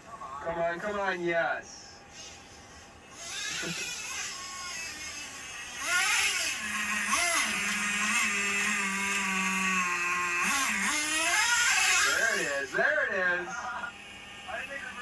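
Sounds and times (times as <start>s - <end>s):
toy truck motor revving: 3.1s - 15.0s.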